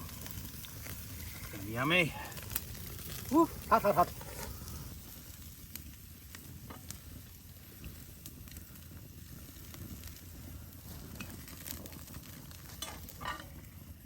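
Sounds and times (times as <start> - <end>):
campfire crackling with pops: 0.0 - 14.0
food sizzling on a grill: 0.0 - 14.0.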